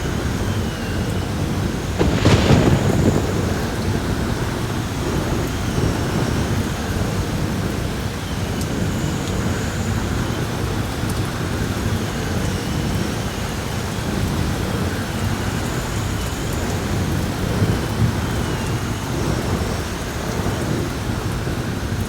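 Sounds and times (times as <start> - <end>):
low rumble of thunder: 0.0 - 8.9
faint high wind whistle: 0.0 - 22.0
heavy rain pouring: 0.0 - 22.0.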